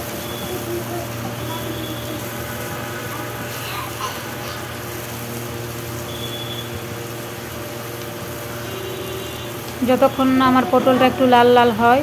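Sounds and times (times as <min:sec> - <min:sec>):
low mechanical hum: 0:00.0 - 0:12.0
vegetables sizzling in oil: 0:00.0 - 0:12.0.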